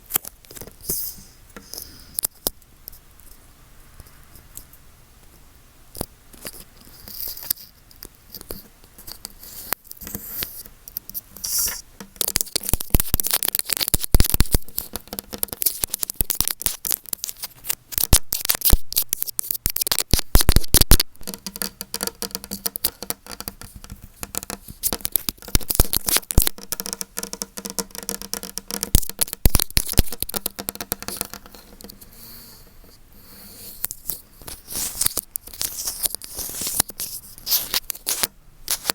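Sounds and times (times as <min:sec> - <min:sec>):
microphone being rubbed and scratched: 0:11.4 - 0:21.0, 0:33.4 - 0:38.9.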